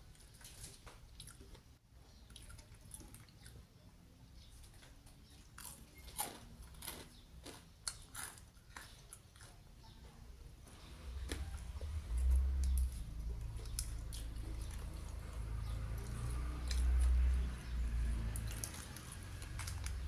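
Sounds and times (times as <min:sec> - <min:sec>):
person chewing food: 0:00.0 - 0:03.7, 0:04.4 - 0:20.0
low rumble: 0:10.6 - 0:18.8.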